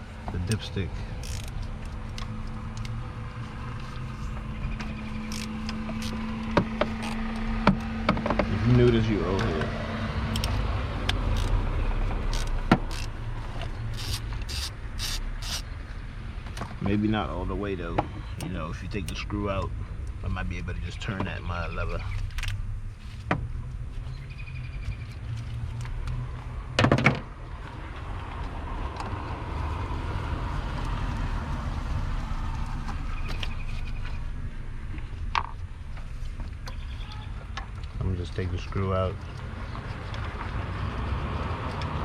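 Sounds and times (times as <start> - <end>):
steady low rumble: 0.0 - 24.8
metal clicks: 0.5 - 3.0, 10.3 - 11.6
wrench rasping strokes: 1.1 - 2.0, 5.2 - 6.2, 11.3 - 11.6, 12.2 - 15.7
sharp clicks: 4.8 - 7.9, 10.2 - 15.8.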